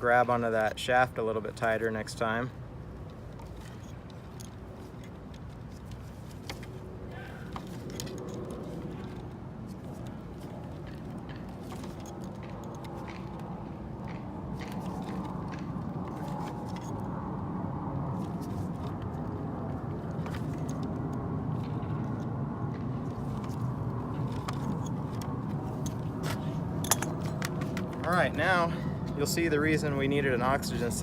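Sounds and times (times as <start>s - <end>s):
hand tools clicking on metal: 26.8s - 27.8s.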